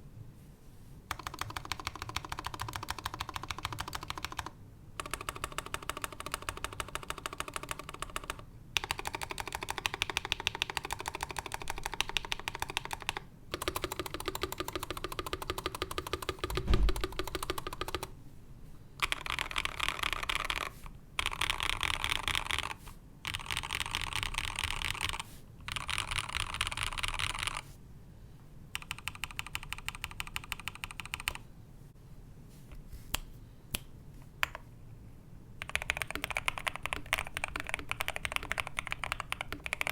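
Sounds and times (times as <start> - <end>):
mechanical keyboard typing: 1.1 - 18.1, 19.0 - 27.6, 28.8 - 31.4, 35.6 - 39.9
deep thump: 16.5 - 17.2.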